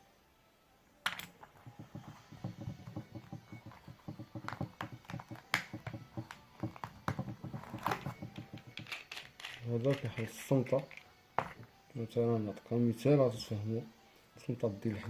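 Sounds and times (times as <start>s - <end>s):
small metal tools clicking and rattling: 7.1s - 11.1s.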